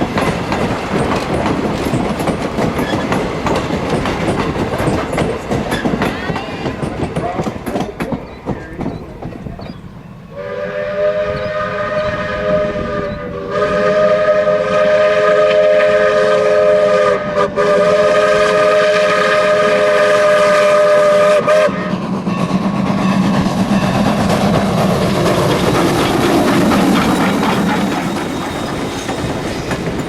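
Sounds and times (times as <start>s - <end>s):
train running noise: 0.0s - 30.0s
steam locomotive whistle: 10.3s - 22.7s.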